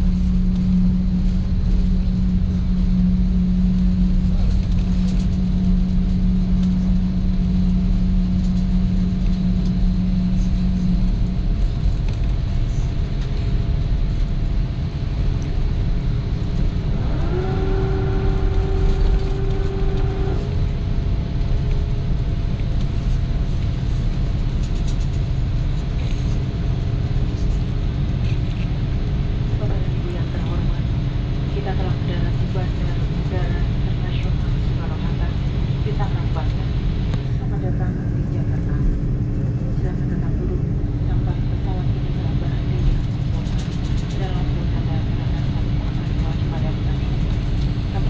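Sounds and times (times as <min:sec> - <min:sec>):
rising whine: 0:00.0 - 0:29.6
aircraft cabin low rumble: 0:00.0 - 0:48.0
steady hum: 0:00.0 - 0:48.0.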